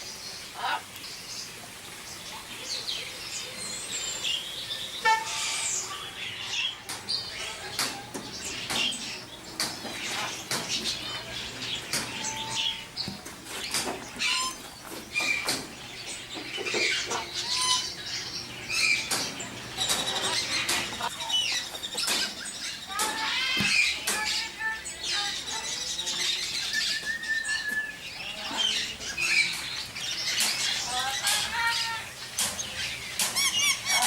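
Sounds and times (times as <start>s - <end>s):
many birds chirping and squawking: 0.0s - 34.0s.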